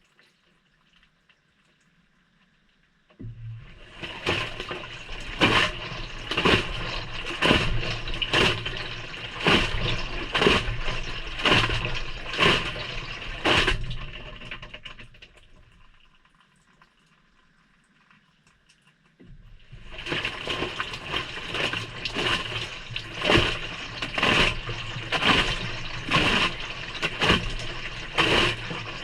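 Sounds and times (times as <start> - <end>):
washer motor hum: 3.1 - 16.3, 19.2 - 29.0
wet laundry sloshing in drum: 3.2 - 16.8, 19.2 - 29.0.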